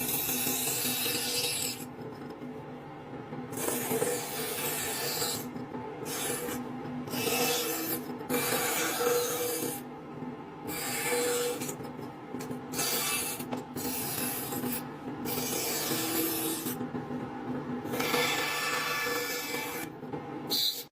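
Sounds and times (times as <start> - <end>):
band saw blade rasping through wood: 17.9 - 19.9
saw motor humming: 17.9 - 19.9.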